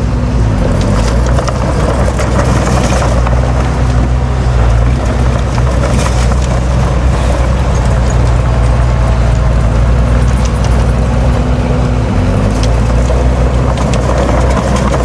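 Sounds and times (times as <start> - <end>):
diesel machinery engine drone: 0.0 - 15.0
metallic clanking and rattling: 0.5 - 15.0.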